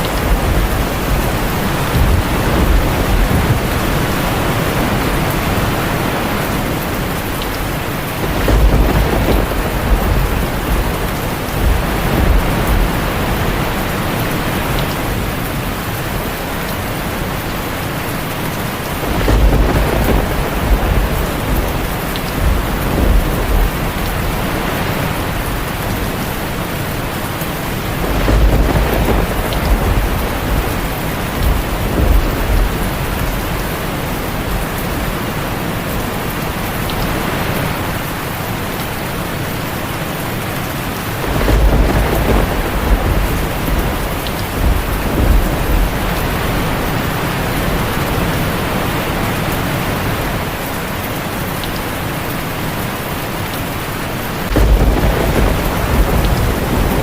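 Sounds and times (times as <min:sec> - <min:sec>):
thunder rolling: 0:00.0 - 0:16.2, 0:18.8 - 0:35.3, 0:41.2 - 0:48.6, 0:54.4 - 0:57.0
heavy rain on a tin roof: 0:00.0 - 0:57.0.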